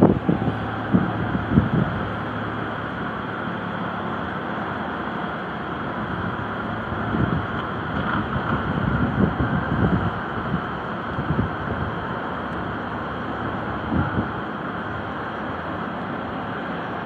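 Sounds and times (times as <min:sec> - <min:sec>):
wind thumping microphone: 0:00.0 - 0:03.1, 0:06.0 - 0:12.2, 0:13.5 - 0:14.4
rushing outdoor ambience: 0:00.0 - 0:17.0.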